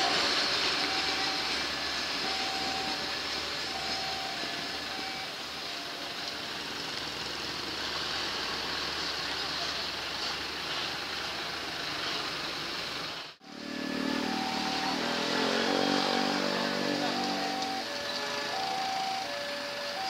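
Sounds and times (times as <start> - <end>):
diesel locomotive engine: 0.0 - 20.0
traffic noise: 0.0 - 20.0
two-tone level crossing chime: 13.5 - 19.3.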